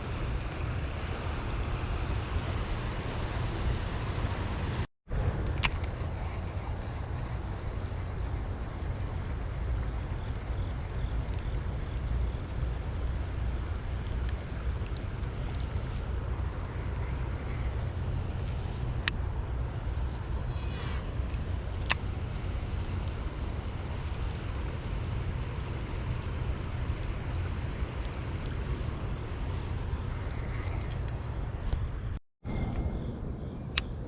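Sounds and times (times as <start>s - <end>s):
steady low rumble: 0.0s - 34.0s
sharp click: 5.4s - 6.0s, 33.7s - 33.9s
small birds chirping: 5.6s - 32.2s.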